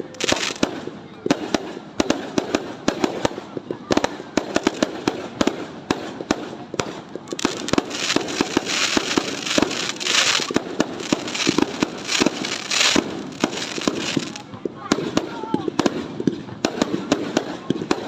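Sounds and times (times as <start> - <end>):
fireworks hissing crackle: 0.0 - 0.9, 7.0 - 14.5
fireworks bangs and pops: 0.0 - 18.0.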